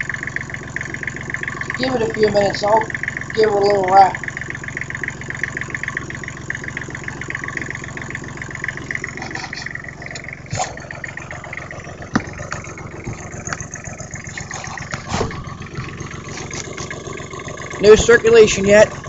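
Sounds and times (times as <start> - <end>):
small diesel engine running: 0.0 - 19.0
sharp knocks: 12.0 - 13.7.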